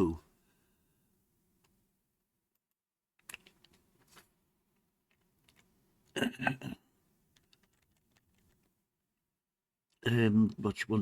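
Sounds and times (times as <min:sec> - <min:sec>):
keyboard keystrokes: 0:07.4 - 0:08.6.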